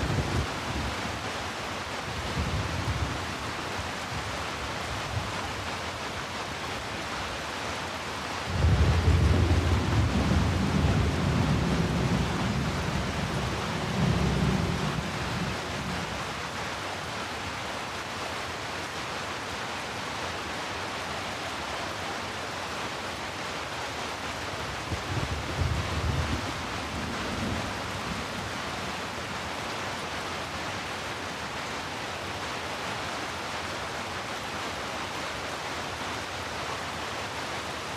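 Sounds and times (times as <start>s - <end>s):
steady rain: 0.0s - 37.9s
low roll of thunder: 8.5s - 16.1s, 24.9s - 28.5s.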